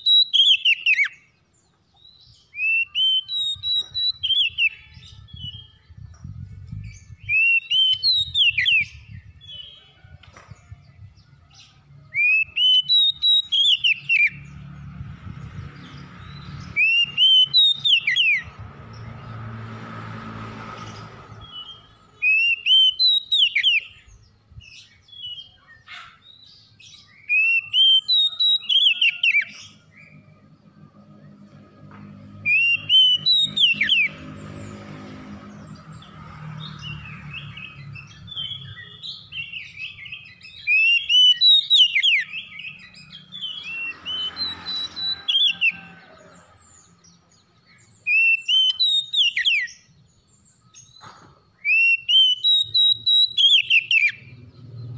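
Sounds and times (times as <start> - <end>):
bird singing whistled phrase: 2.5 - 4.9, 51.6 - 54.2.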